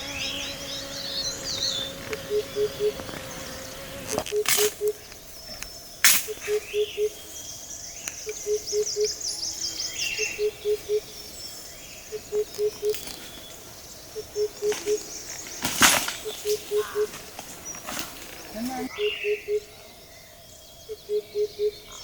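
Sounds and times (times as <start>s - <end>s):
bird chirps and trills: 0.0s - 22.0s
bird whistled hoots: 1.6s - 3.0s, 4.3s - 5.1s, 6.1s - 7.3s, 8.2s - 11.2s, 12.1s - 13.3s, 14.1s - 15.2s, 16.2s - 17.1s, 18.9s - 19.8s, 20.9s - 22.0s.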